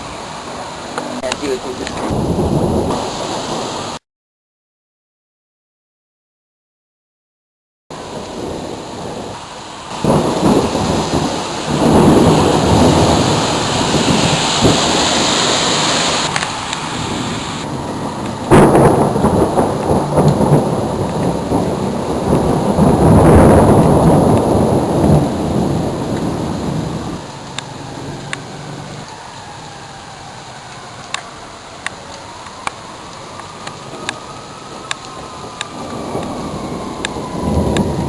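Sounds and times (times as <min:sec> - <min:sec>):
rain hissing: 0:00.0 - 0:04.0, 0:07.9 - 0:38.0
sharp thunder crack: 0:01.2 - 0:03.3, 0:08.3 - 0:15.9, 0:17.0 - 0:27.1
rolling thunder: 0:01.4 - 0:03.7, 0:08.2 - 0:30.1, 0:33.5 - 0:38.0.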